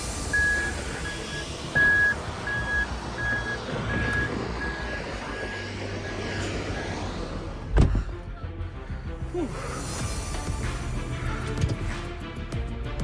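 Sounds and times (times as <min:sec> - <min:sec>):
vehicle backup alarm beeping: 0:00.0 - 0:07.6
low engine rumble: 0:00.0 - 0:11.4.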